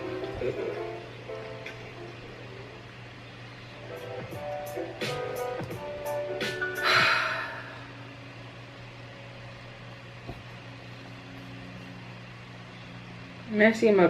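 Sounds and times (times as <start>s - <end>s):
music: 0.0s - 8.0s
low mechanical hum: 0.0s - 14.0s.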